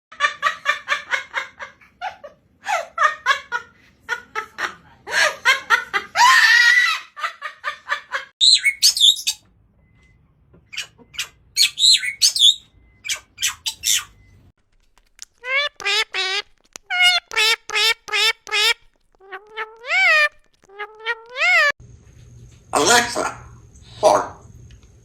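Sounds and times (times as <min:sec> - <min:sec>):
parrot squawking: 0:08.4 - 0:09.4, 0:10.7 - 0:14.2, 0:15.1 - 0:21.8
parrot whistled warbling calls: 0:10.7 - 0:14.2, 0:15.4 - 0:21.8
parrots chattering: 0:10.7 - 0:14.2, 0:15.0 - 0:21.8.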